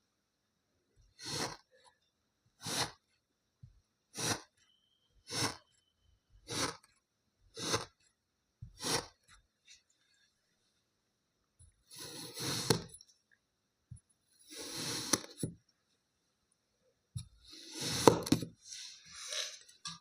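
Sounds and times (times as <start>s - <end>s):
knife slicing kinetic sand: 1.2s - 1.8s, 2.6s - 3.0s, 4.1s - 4.6s, 5.2s - 5.7s, 6.4s - 6.9s, 7.5s - 8.0s, 8.6s - 9.2s, 11.9s - 13.0s, 14.4s - 15.6s, 17.2s - 19.5s.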